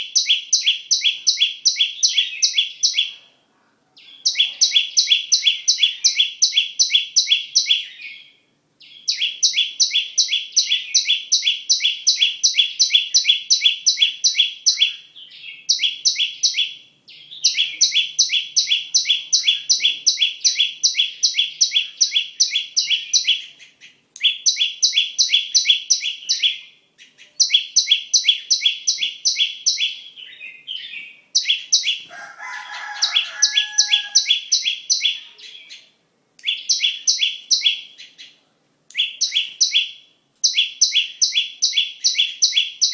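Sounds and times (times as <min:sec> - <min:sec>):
bird rapid high chirps: 0:00.0 - 0:03.2, 0:04.0 - 0:42.9
lower-pitched bird call: 0:04.0 - 0:35.8.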